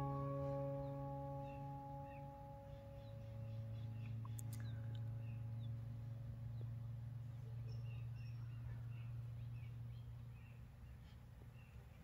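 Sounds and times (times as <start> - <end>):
songbirds chirping: 0.0 - 12.0
steady low hum: 0.0 - 12.0.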